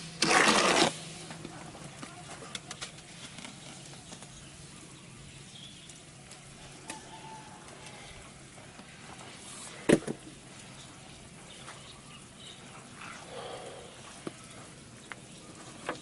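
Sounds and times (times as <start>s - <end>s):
faint bird calls: 10.6s - 16.0s.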